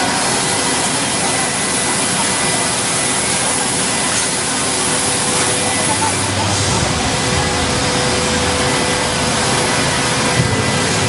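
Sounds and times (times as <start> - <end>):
wood router machine running: 0.0 - 11.0.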